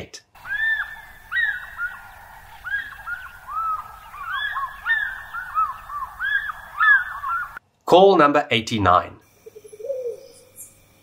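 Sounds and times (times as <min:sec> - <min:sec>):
birds calling: 0:00.4 - 0:07.6, 0:09.4 - 0:10.8.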